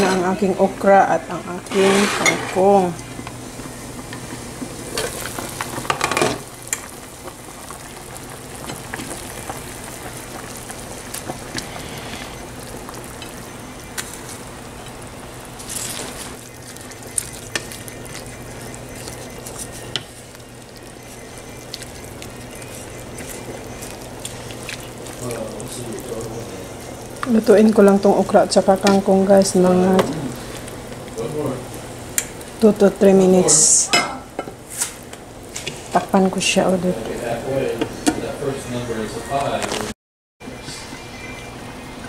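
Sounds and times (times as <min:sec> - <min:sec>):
soup bubbling at the boil: 0:02.2 - 0:38.1
stirring vegetables in a pot: 0:15.6 - 0:32.6
utensil clicking against pot: 0:32.2 - 0:32.4.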